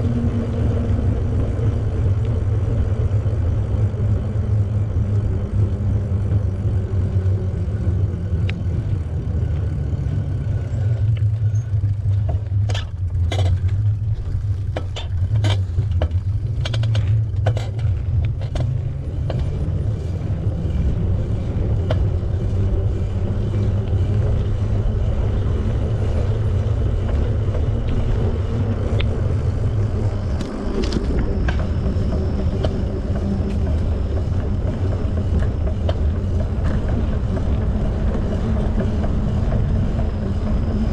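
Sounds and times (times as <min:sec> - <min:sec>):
bicycle rolling noise: 0:00.0 - 0:40.9
sharp clicks and rattles: 0:08.3 - 0:19.8.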